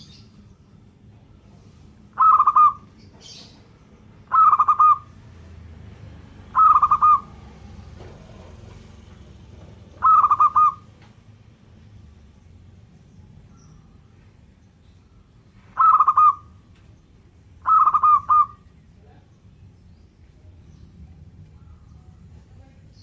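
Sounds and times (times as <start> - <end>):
dove cooing: 2.1 - 3.6, 4.3 - 5.6, 6.3 - 9.0, 9.8 - 11.0, 15.7 - 16.6, 17.6 - 18.7.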